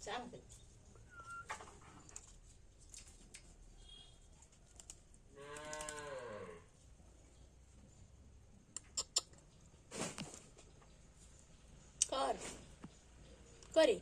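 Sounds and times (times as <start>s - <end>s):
moo-like animal call: 5.4s - 6.7s.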